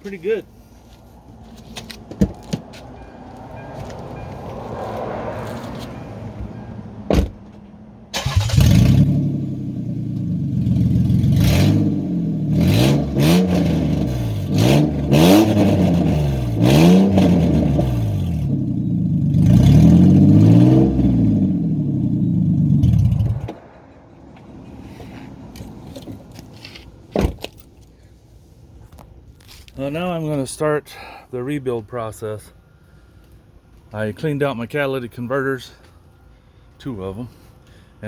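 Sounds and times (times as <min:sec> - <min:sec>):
loud car engine revving: 0:08.3 - 0:23.5.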